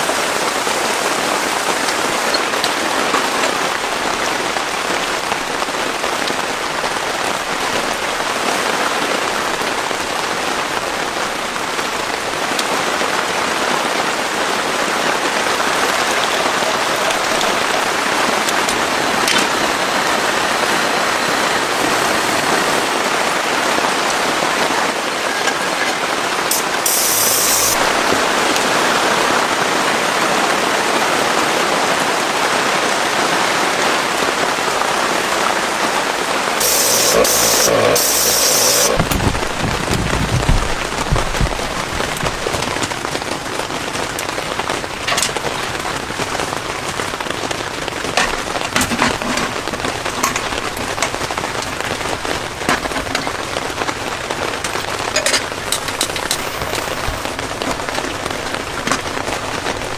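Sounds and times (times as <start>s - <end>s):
heavy rain falling: 0.0s - 59.9s
brief sharp high noise: 36.6s - 39.1s.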